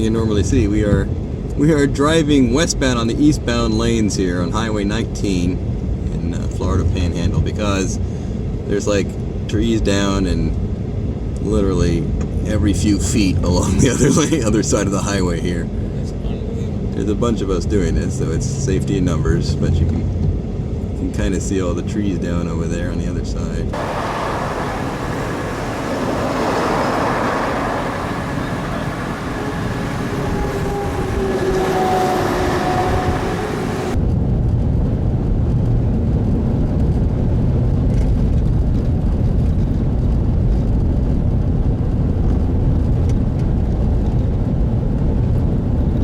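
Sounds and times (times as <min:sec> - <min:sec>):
car road and wind noise: 0:00.0 - 0:46.0
dull low rumble: 0:23.5 - 0:46.0.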